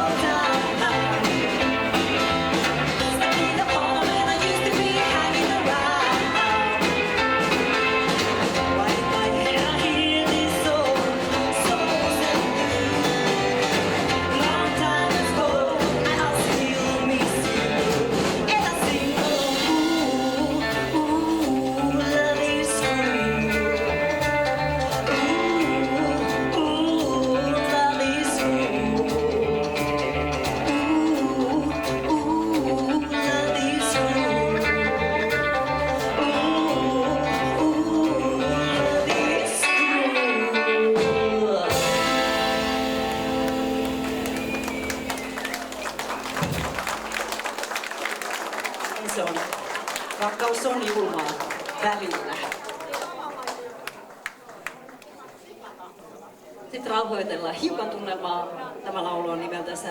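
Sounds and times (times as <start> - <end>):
person singing: 0.0 - 45.9
rockabilly band playing live: 0.0 - 55.0.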